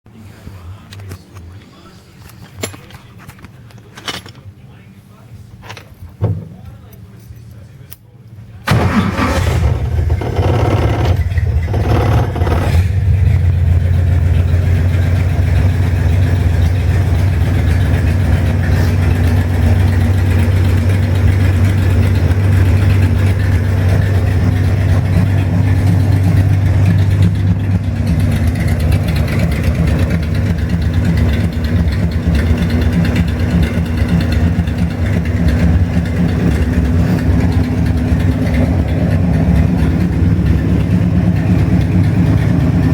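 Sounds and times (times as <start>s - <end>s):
car engine starting and idling: 8.6s - 42.9s.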